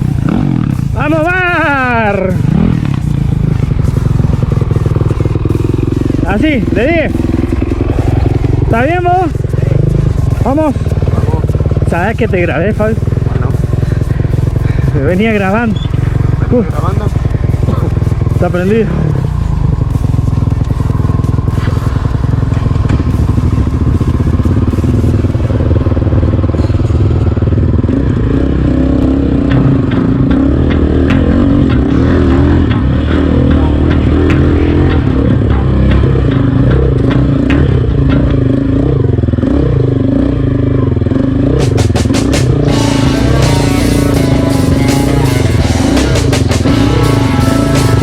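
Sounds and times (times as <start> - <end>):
motorcycle engine revving: 0.0 - 48.0
sharp clicks and knocks: 29.0 - 38.7.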